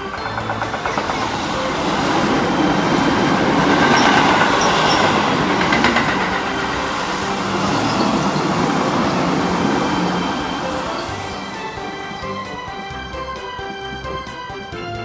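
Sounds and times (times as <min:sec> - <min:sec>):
train wheels rumbling on rail: 0:00.0 - 0:15.0
wheels clicking over rail joints: 0:00.0 - 0:15.0.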